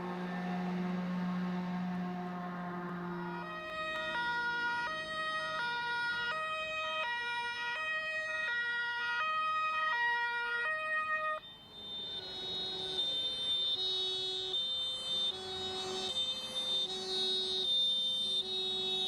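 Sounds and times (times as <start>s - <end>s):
two-tone fire engine siren: 0.0s - 19.0s.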